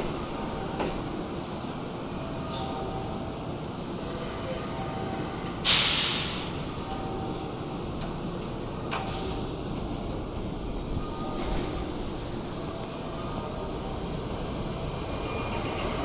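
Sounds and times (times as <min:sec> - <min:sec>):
low rumble of train: 0:00.0 - 0:16.0
train brakes venting air hiss: 0:03.7 - 0:07.1, 0:09.0 - 0:09.9.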